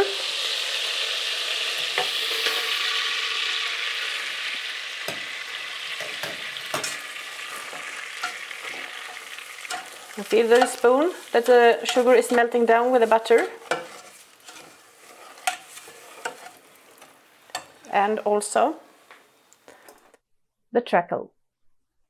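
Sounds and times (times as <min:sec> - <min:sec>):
butter and sugar sizzling: 0:00.0 - 0:20.1
spoon knocking against pot: 0:05.0 - 0:05.4, 0:06.0 - 0:10.0.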